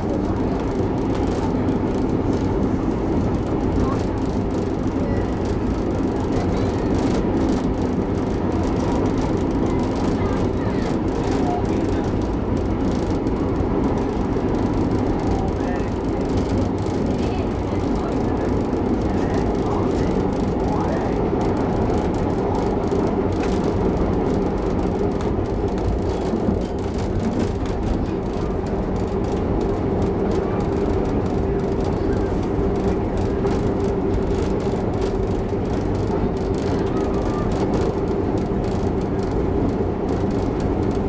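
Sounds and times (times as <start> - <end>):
train wheels rumbling on rails: 0.0 - 41.0.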